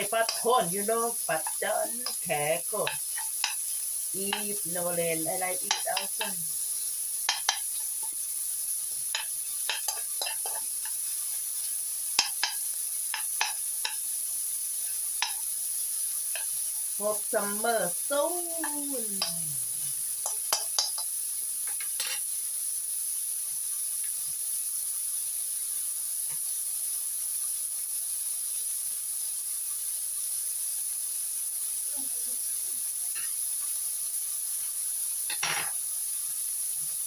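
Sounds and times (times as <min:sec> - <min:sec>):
food sizzling in hot oil: 0:00.0 - 0:37.0
spatula scraping a pan: 0:00.2 - 0:04.6, 0:05.3 - 0:08.2, 0:09.0 - 0:14.0, 0:20.2 - 0:22.3.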